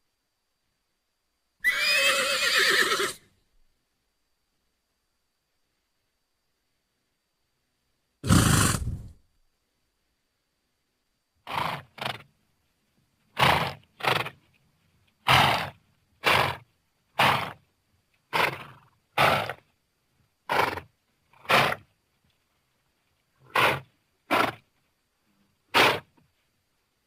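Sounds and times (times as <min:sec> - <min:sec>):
horse snorting breaths: 0:08.2 - 0:09.2.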